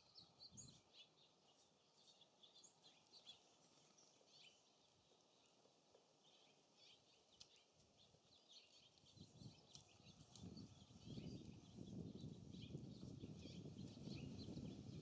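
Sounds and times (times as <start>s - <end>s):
songbirds chirping: 0.0s - 15.0s
wind gusting on microphone: 9.2s - 15.0s.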